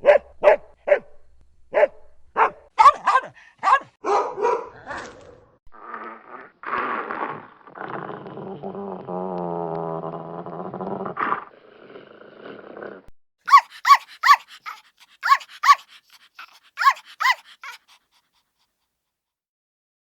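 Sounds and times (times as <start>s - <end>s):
dog yapping: 2.4s - 4.7s, 13.5s - 18.2s
dog growling: 5.8s - 18.2s.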